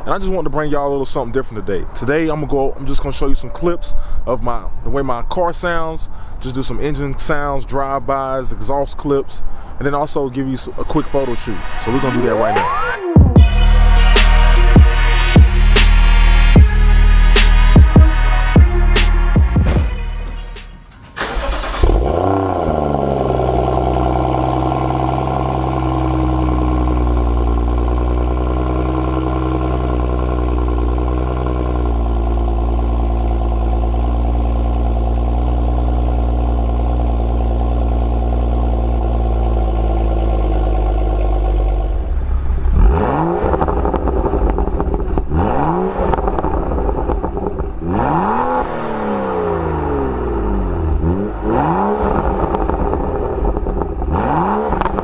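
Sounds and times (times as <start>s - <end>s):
car engine revving: 11.5s - 55.0s
car engine starting and idling: 12.6s - 55.0s.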